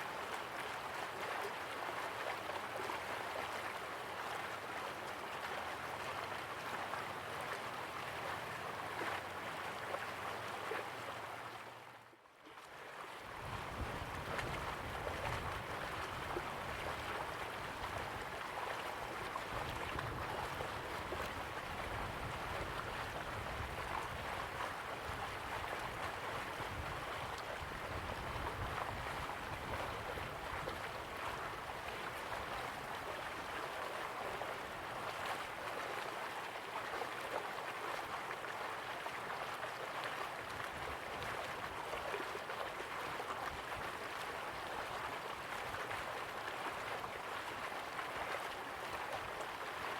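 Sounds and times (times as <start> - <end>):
river water rushing: 13.2 - 49.9.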